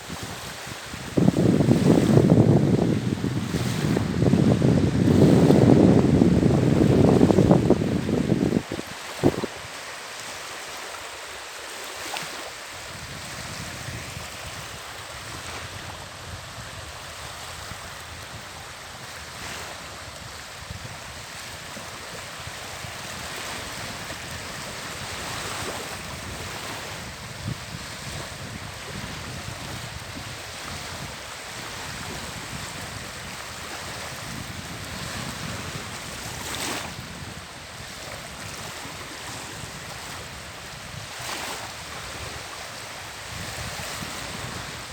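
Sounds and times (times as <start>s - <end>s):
wind on microphone: 0.0s - 11.0s, 12.0s - 44.9s
small waves on shore: 0.0s - 44.9s.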